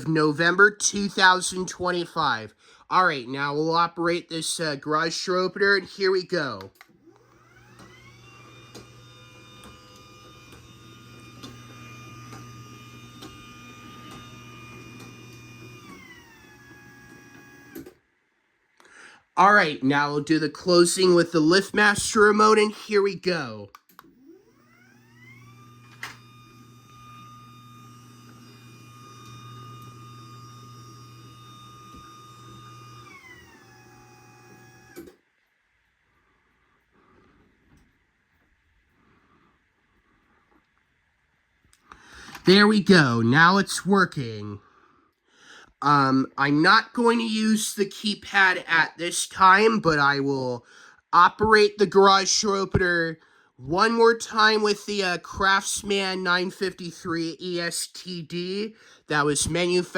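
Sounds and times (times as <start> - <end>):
garage door opener motor: 6.8 - 18.0, 23.9 - 35.3.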